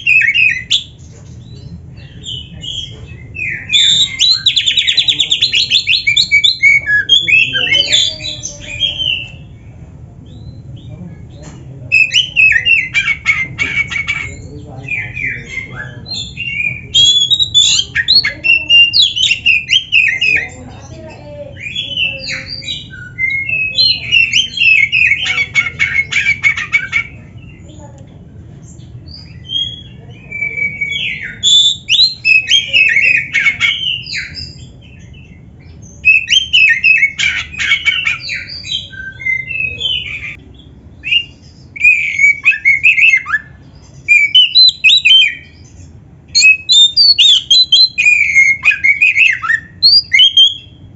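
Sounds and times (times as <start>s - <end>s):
bird singing whistled and harsh notes: 0.0s - 9.5s, 11.9s - 20.6s, 21.5s - 27.6s, 29.1s - 40.4s, 41.0s - 50.9s
steady low hum: 0.0s - 50.9s.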